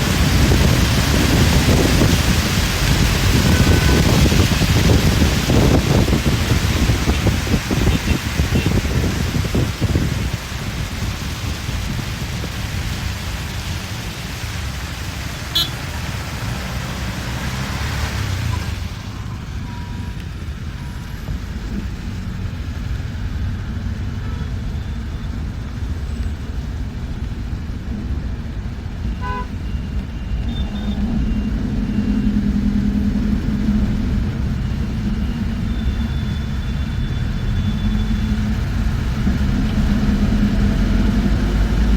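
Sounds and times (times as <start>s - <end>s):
bus engine and road rumble: 0.0s - 41.9s
car horn toots: 3.3s - 4.4s, 15.5s - 15.8s, 29.2s - 29.6s.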